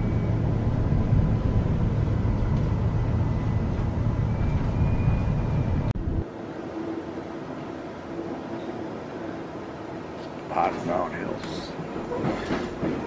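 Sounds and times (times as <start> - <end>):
train cabin low rumble: 0.0 - 6.3.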